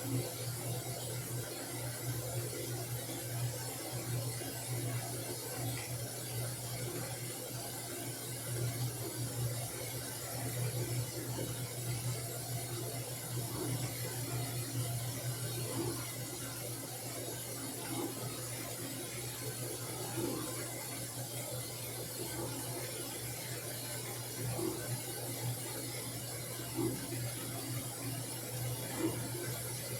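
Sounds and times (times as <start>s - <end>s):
washing machine humming: 0.0s - 29.9s.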